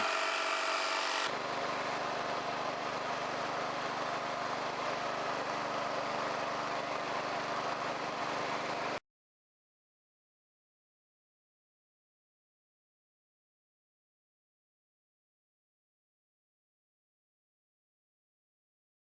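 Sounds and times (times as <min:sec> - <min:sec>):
garden tractor engine running: 0:00.0 - 0:09.0.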